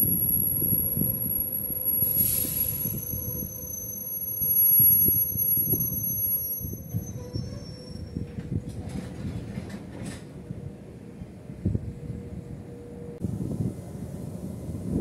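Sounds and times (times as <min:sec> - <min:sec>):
high wheel squeal: 0:00.0 - 0:08.4
train wheels rumbling on rail: 0:00.0 - 0:15.0
short hiss: 0:02.1 - 0:02.9.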